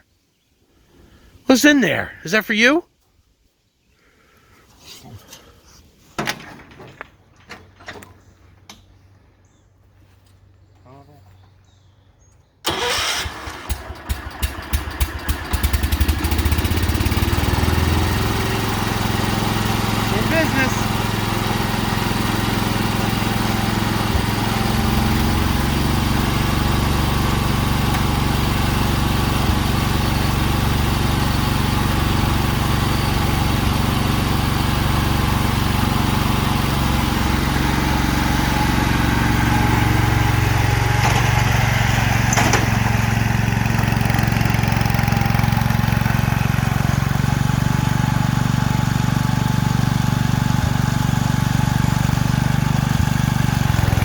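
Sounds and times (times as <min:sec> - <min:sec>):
garden tractor engine running: 0:12.6 - 0:54.0.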